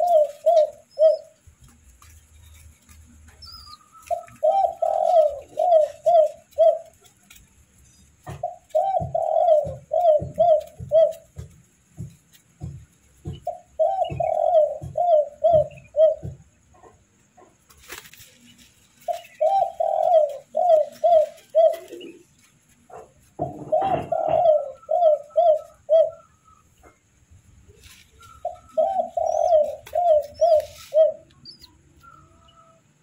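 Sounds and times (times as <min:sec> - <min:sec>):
doves calling: 0:00.0 - 0:33.0
soft low knocks: 0:08.1 - 0:17.7.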